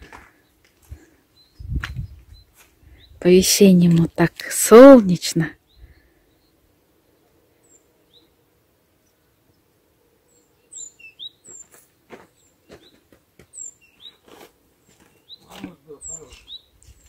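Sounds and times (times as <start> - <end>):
footsteps crunching on snow: 0.0 - 2.8, 11.4 - 17.0
small birds chirping: 0.0 - 17.0.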